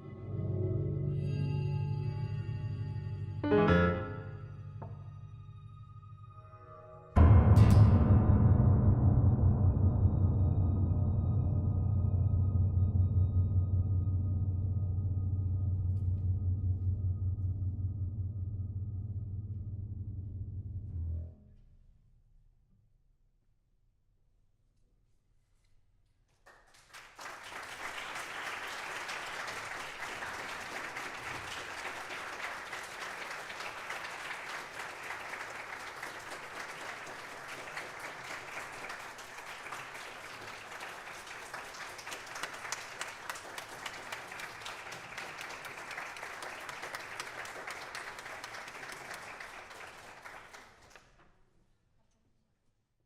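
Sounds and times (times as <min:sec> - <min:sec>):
audience applauding: 0:26.4 - 0:51.2.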